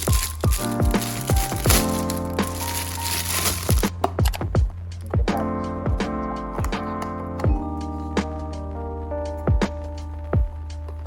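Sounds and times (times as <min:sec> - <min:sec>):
keyboard chords: 0:00.0 - 0:11.0
kick drum beats: 0:03.7 - 0:05.3, 0:10.4 - 0:10.6.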